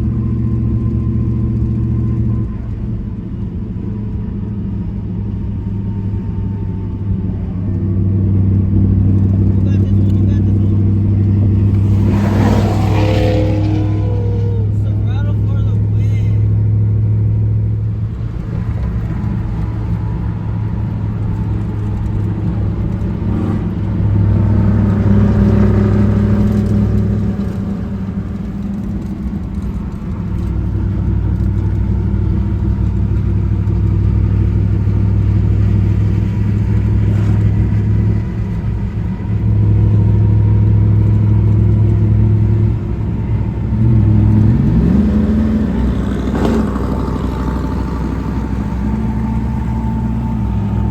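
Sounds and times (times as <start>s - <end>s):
vehicle engine running and revving: 0.0s - 50.9s.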